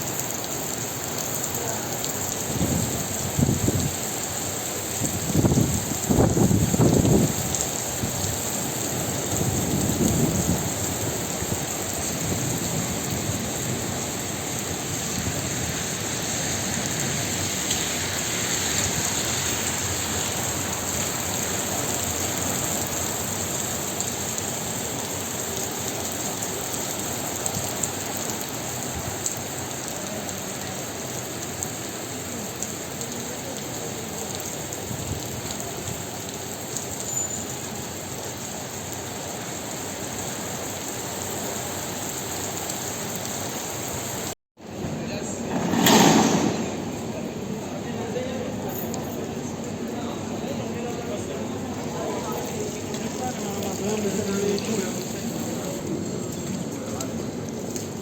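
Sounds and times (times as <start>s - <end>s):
heavy rain falling: 0.0s - 58.0s
low thunder rumbles: 5.0s - 17.6s, 44.7s - 48.2s.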